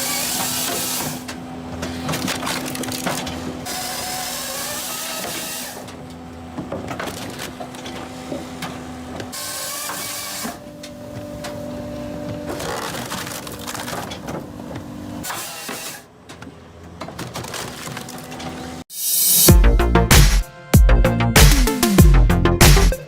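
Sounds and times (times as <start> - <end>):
logs cracking and splitting: 12.5 - 14.2
loud hiss: 18.9 - 19.5.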